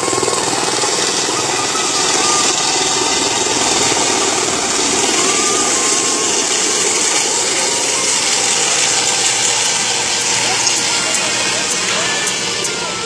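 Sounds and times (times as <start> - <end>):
helicopter turbine and rotor noise: 0.0 - 13.0.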